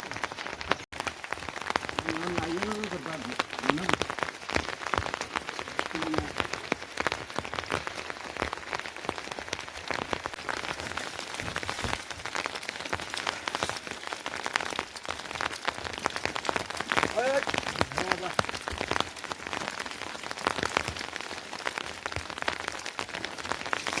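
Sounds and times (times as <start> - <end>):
raindrops hitting a surface: 0.0 - 24.0
steady rain: 0.0 - 24.0.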